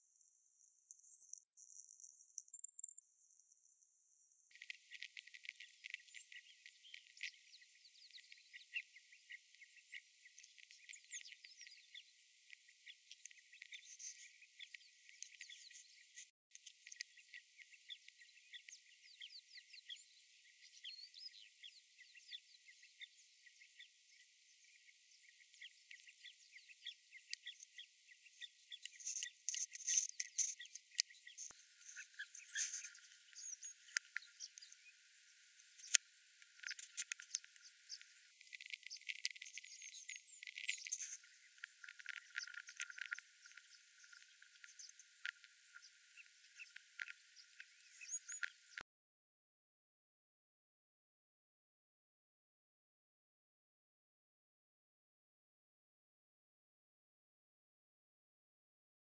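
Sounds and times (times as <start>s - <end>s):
birds chirping and ticking: 0.1s - 48.8s.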